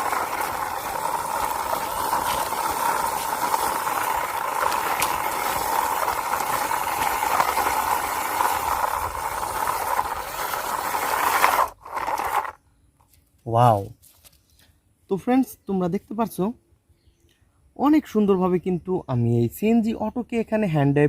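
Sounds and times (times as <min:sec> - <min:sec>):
toy wheels rolling along a wall: 0:00.0 - 0:12.6.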